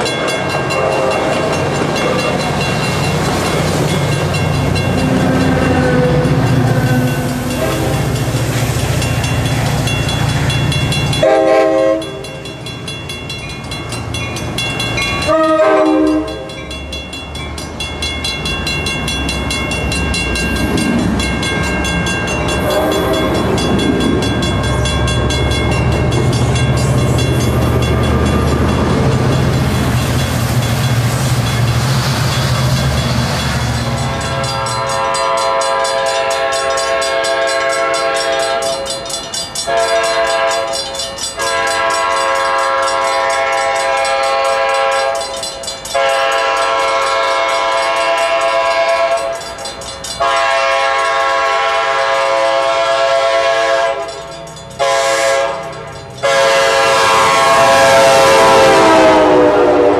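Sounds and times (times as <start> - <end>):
train passing wheel noise: 0.0 - 59.9
locomotive air horn blasts: 0.6 - 1.5, 4.9 - 8.3, 11.2 - 12.3, 15.2 - 16.5, 22.6 - 23.5, 34.2 - 38.8, 39.7 - 40.8, 41.4 - 45.2, 46.0 - 49.3, 50.2 - 54.1, 54.8 - 59.9.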